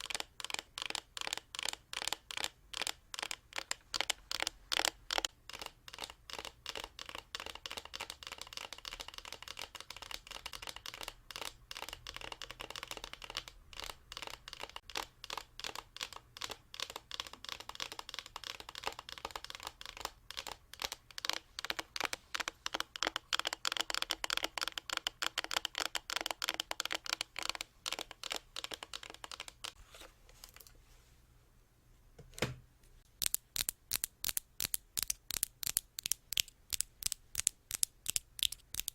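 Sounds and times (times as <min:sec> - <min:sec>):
fingers tapping on objects: 0:14.2 - 0:29.8, 0:33.2 - 0:38.9.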